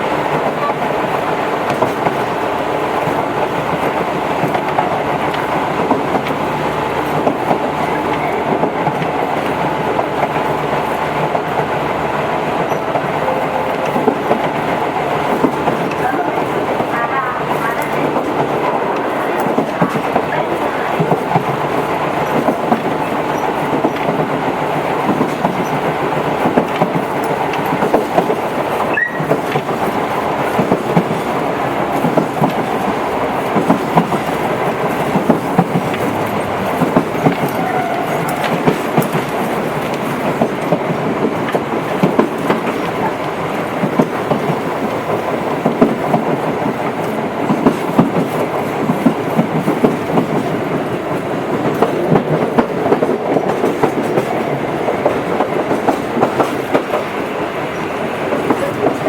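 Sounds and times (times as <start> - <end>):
electric train rumbling: 0.0 - 59.0
wheels clattering over rail joints: 0.0 - 59.0.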